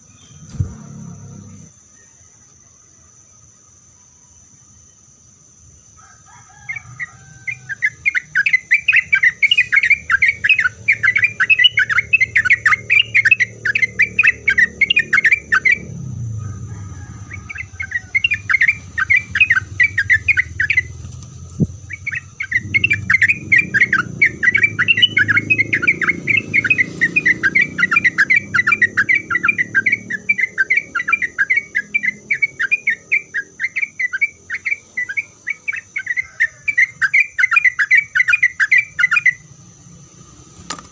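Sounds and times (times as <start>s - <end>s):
bird chattering song: 6.6s - 39.5s
steady high whine: 7.4s - 35.3s
low background rumble: 9.0s - 29.0s.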